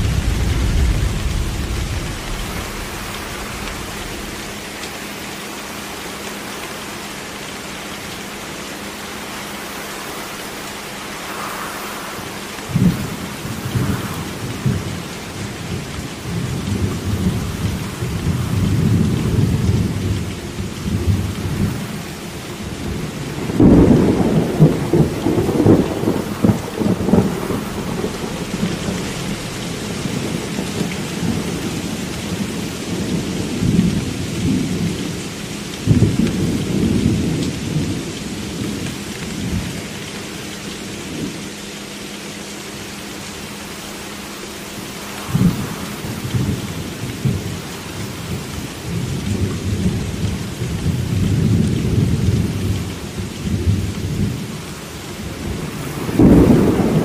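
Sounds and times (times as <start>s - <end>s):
loud thunderclap: 0.0s - 5.2s, 11.2s - 21.9s, 22.8s - 35.0s, 55.3s - 57.0s
rolling thunder: 0.0s - 5.4s, 10.2s - 35.2s, 45.1s - 54.6s, 55.2s - 57.0s
steady rain: 0.0s - 57.0s.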